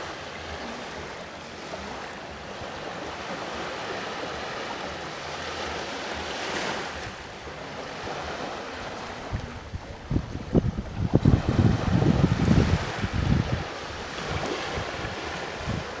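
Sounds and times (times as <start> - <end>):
sea waves washing onto shore: 0.0 - 16.0
wind buffeting microphone: 6.8 - 16.0.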